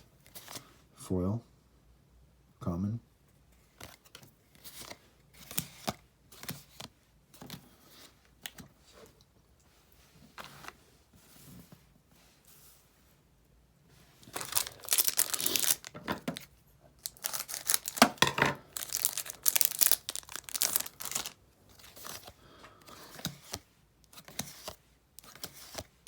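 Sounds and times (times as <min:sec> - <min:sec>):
plastic wrapper tearing and crinkling: 0:14.2 - 0:22.2.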